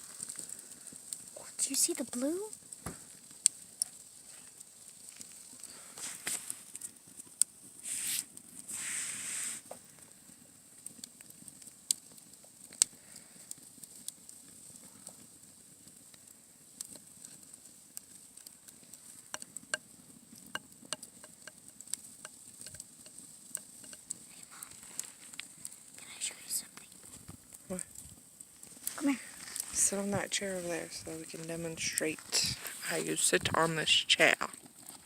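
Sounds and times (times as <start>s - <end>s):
wood fire crackling: 0.0s - 35.0s
brief hisses: 7.8s - 9.7s
low rustle: 23.8s - 34.0s.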